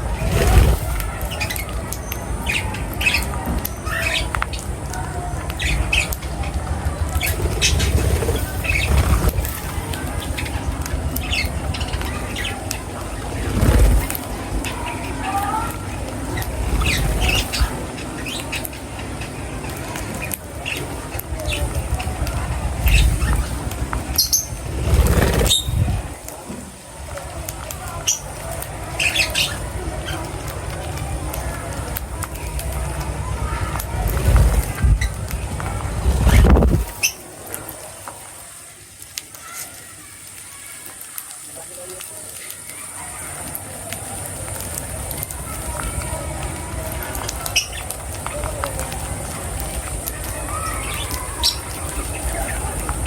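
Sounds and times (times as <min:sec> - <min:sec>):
small birds squawking and chirping: 0:00.0 - 0:37.4, 0:39.3 - 0:53.0
steady low rumble: 0:05.7 - 0:15.0, 0:31.0 - 0:37.0
low thumps: 0:33.9 - 0:37.0.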